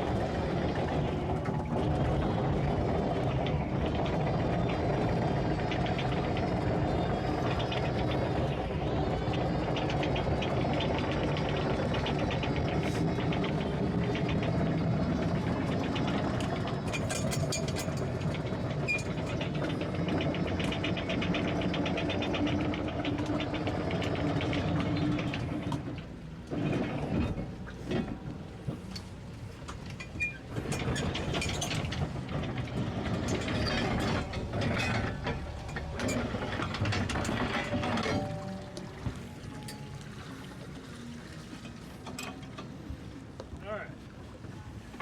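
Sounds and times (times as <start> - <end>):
anchor windlass running: 0.0 - 45.0
boat engine idling: 0.0 - 45.0.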